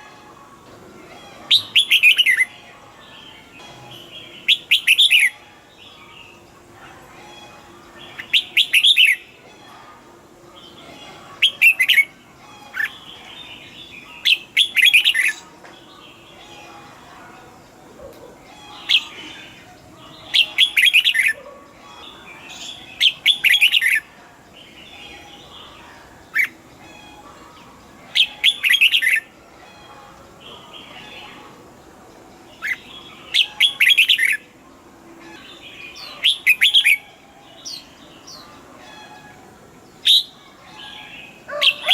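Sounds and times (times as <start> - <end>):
bird singing whistled phrases: 1.5 - 2.5, 4.4 - 5.4, 8.2 - 9.2, 14.2 - 15.4.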